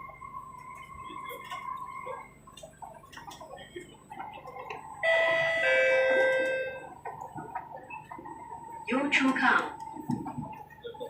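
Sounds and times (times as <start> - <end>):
faint train running: 0.0 - 11.0
two-note descending electronic chime: 5.0 - 6.9.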